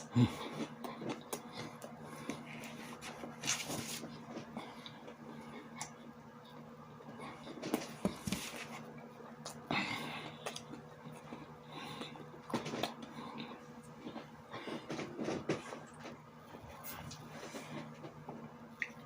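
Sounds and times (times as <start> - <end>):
faint steady hum: 0.0 - 19.0
chewing and mouth noises: 0.2 - 6.0.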